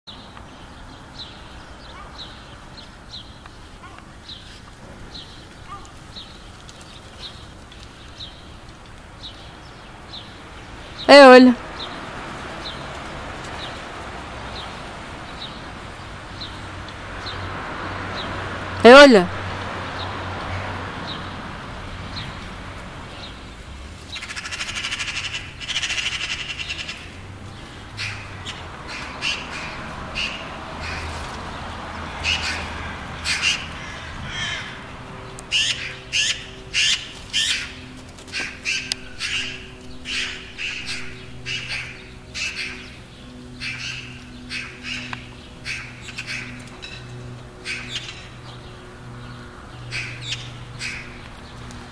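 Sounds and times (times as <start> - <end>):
birds squawking: 24.1 - 31.2, 32.1 - 51.7.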